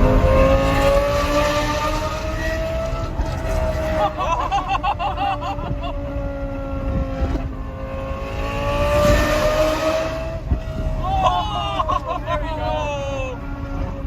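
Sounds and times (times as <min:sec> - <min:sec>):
car engine heard from inside: 0:00.0 - 0:14.0.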